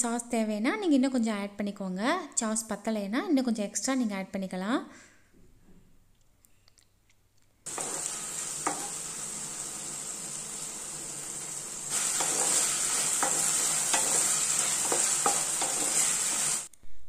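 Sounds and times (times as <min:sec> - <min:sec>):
spatula tapping pan: 0:07.7 - 0:09.1, 0:11.9 - 0:16.6
vegetables sizzling in sauce: 0:07.7 - 0:16.7.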